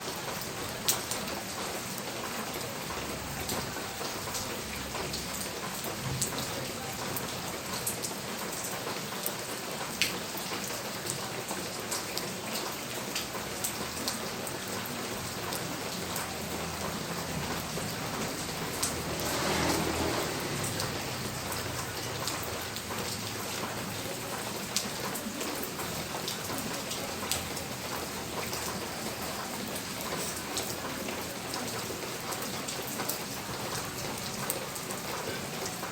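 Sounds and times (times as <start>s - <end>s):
steady rain falling: 0.0s - 35.9s
sharp drip ticks: 23.9s - 35.9s.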